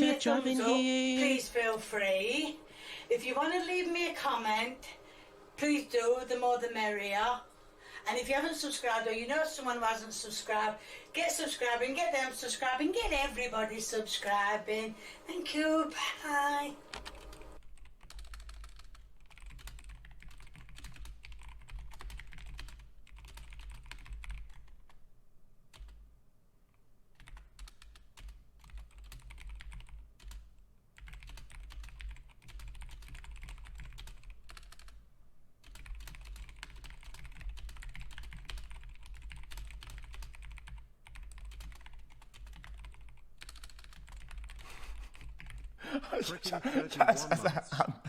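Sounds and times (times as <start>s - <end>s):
fast typing on keyboard: 16.5s - 25.0s, 25.7s - 26.0s, 27.1s - 35.0s, 35.6s - 45.8s.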